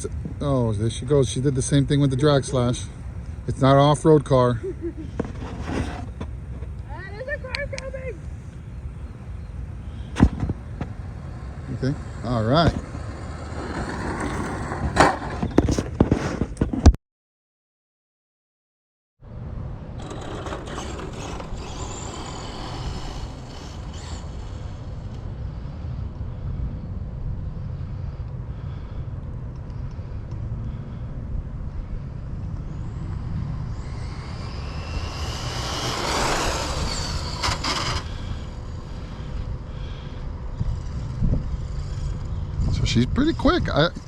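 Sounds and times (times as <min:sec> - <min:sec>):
outdoor rumble: 0:00.0 - 0:16.8, 0:19.3 - 0:44.0
tyre noise: 0:05.0 - 0:06.8, 0:10.0 - 0:16.9, 0:32.8 - 0:39.4
rc car motor whine: 0:05.2 - 0:06.3, 0:08.4 - 0:15.7, 0:19.8 - 0:26.2, 0:31.8 - 0:44.0.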